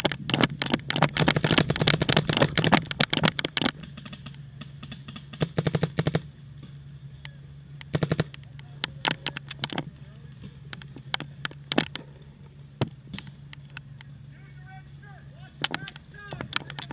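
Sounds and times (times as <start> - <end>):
paintball markers firing: 0.0 - 6.3, 7.8 - 12.0, 15.6 - 16.9.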